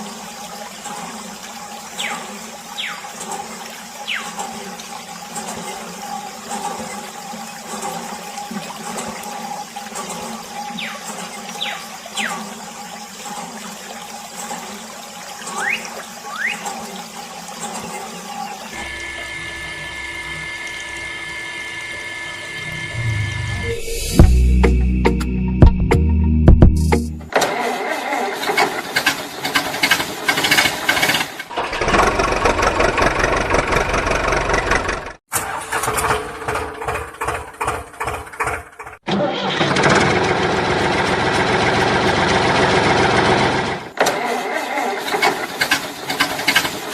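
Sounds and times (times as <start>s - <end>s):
water splashing from toy pump: 0.0s - 23.6s, 27.4s - 46.9s
engine running steadily: 27.0s - 39.0s, 39.6s - 44.0s.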